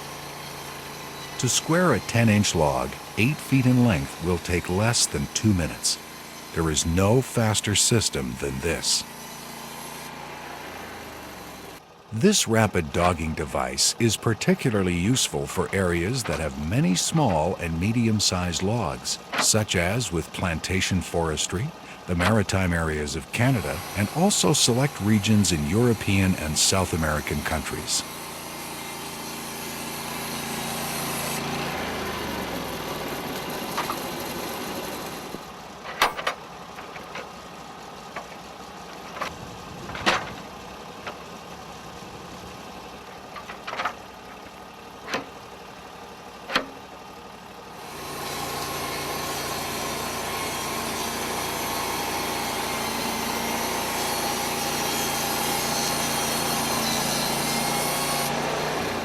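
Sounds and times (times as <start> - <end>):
band saw cutting log: 0.0 - 35.5, 47.8 - 59.0
sawmill engine running: 0.0 - 59.0.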